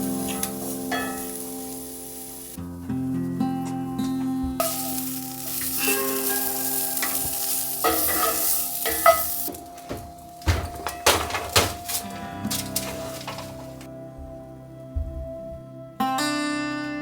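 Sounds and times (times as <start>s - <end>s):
food sizzling in frying pan: 0.0s - 2.6s, 4.6s - 9.8s, 11.1s - 13.8s
stirring in pan: 4.6s - 9.7s.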